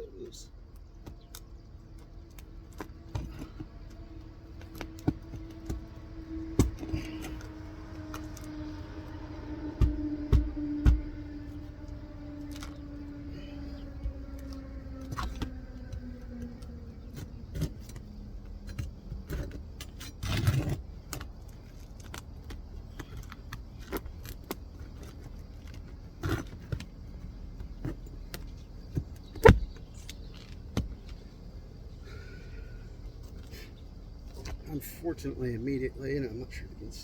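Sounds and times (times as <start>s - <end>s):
falling hum: 2.1s - 19.5s
metallic clicks and scrapes: 17.1s - 26.9s.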